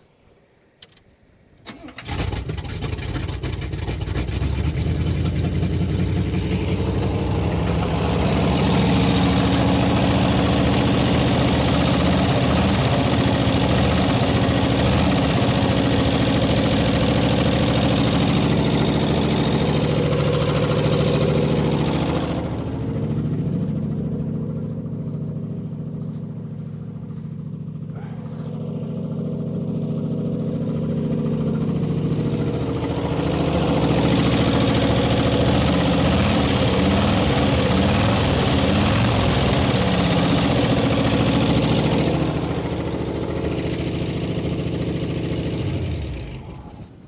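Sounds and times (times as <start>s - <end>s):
car engine starter cranking: 0.8s - 4.4s
car engine running: 1.7s - 47.0s.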